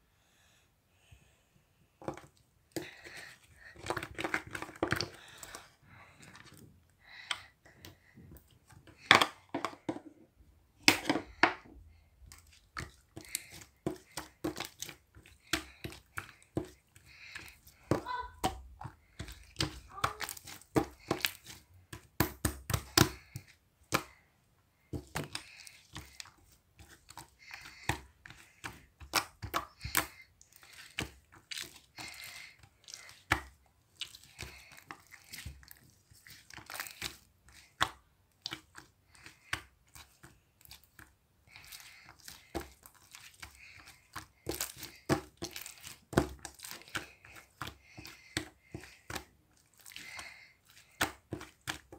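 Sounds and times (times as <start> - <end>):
slime clicking and crackling: 25.0 - 51.9.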